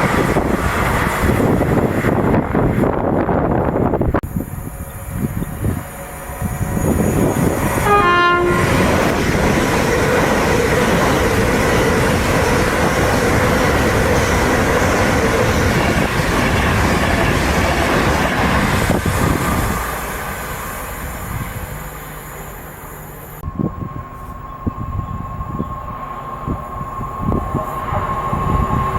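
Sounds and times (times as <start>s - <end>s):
train rushing past: 0.0s - 28.9s
train horn blast: 7.8s - 9.0s.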